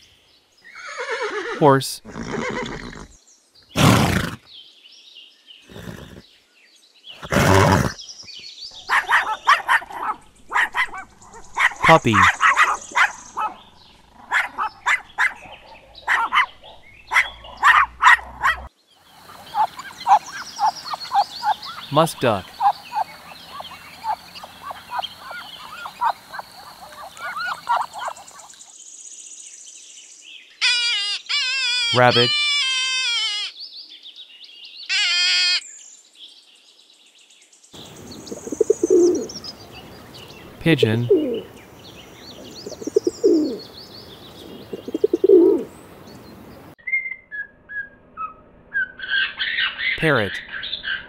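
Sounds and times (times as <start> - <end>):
horse calling: 0.7 - 3.1, 3.7 - 4.4, 5.7 - 6.2, 7.2 - 8.0, 19.2 - 28.5, 44.6 - 45.7
ducks calling: 8.7 - 28.6, 37.8 - 45.7
puppies yipping: 8.8 - 13.6, 14.2 - 18.7, 19.3 - 21.9, 22.5 - 28.6.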